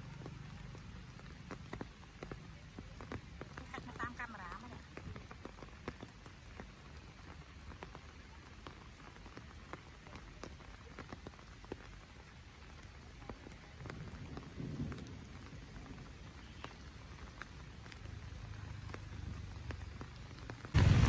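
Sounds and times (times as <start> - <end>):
rain falling: 0.0 - 21.0
raindrops ticking: 0.0 - 21.0
low rumble: 20.8 - 21.0.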